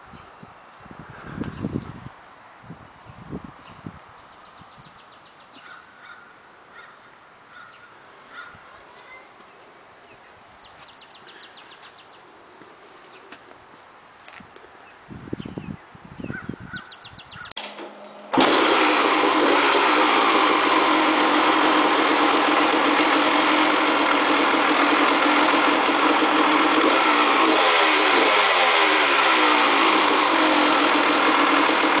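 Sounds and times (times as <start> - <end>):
motorcycle engine kick start thumps: 17.6 - 32.0
two-stroke engine running: 17.6 - 32.0.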